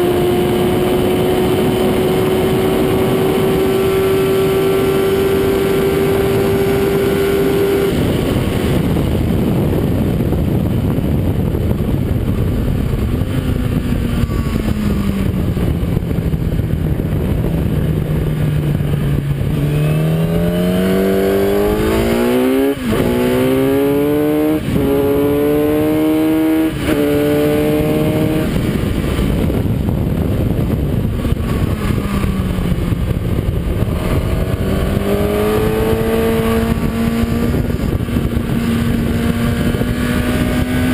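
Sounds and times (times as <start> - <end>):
heavy wind rush: 0.0 - 40.9
motorcycle engine revving: 0.0 - 40.9.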